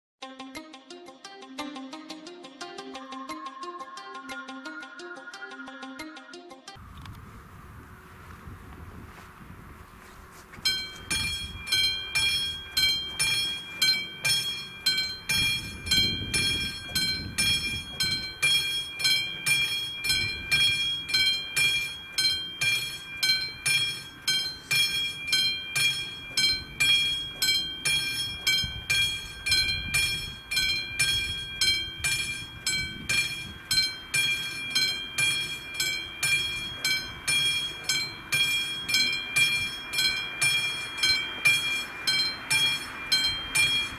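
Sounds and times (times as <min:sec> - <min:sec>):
level crossing bell ringing: 0:10.6 - 0:43.9.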